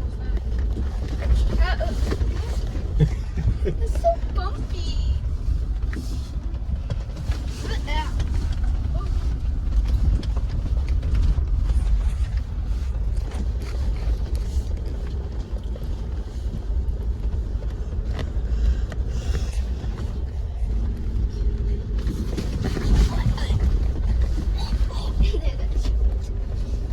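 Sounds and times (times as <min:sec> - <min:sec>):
vehicle engine and tyres rumbling: 0:00.0 - 0:26.9.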